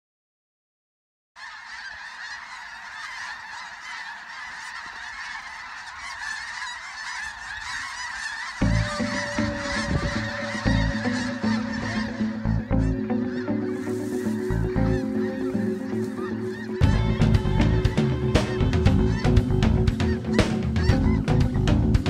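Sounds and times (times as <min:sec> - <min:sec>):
flock of geese honking: 0:01.4 - 0:22.0
background music with steady beat: 0:08.6 - 0:22.0.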